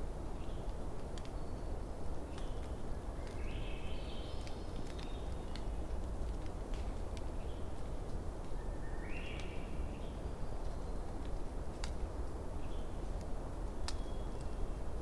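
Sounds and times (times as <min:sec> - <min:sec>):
campfire burning: 0:04.3 - 0:08.6, 0:10.6 - 0:15.0
fire crackling pops: 0:04.4 - 0:08.6, 0:11.1 - 0:12.2, 0:13.2 - 0:14.6.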